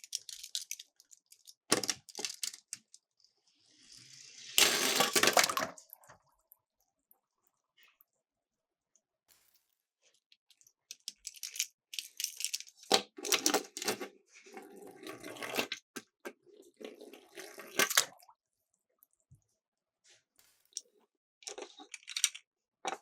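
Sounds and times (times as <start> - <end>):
toy cars clattering: 0.0 - 3.0, 4.6 - 5.7, 10.9 - 14.1, 21.4 - 23.0
toy cars splashing into water: 3.8 - 6.2.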